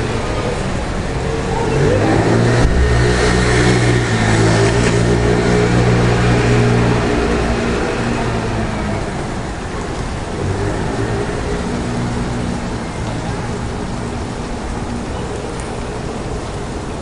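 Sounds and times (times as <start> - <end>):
hiss of a wet street: 0.0 - 17.0
car engine running: 1.6 - 14.3.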